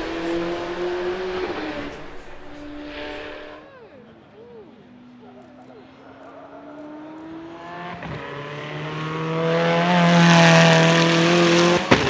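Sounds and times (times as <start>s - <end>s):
car engine passing by: 0.0s - 3.6s, 6.9s - 12.0s.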